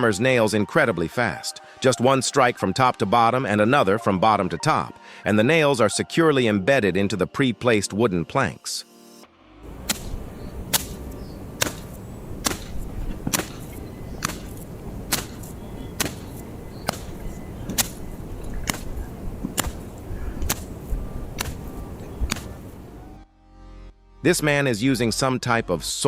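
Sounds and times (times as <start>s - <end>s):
hammer driving nails into wood: 9.8s - 20.7s.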